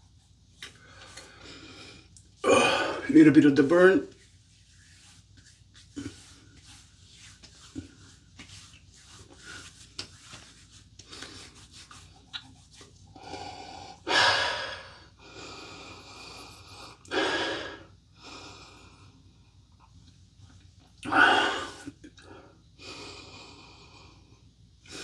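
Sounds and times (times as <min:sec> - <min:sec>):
man breathing deeply: 0:13.2 - 0:16.1, 0:17.1 - 0:17.8, 0:21.1 - 0:21.8.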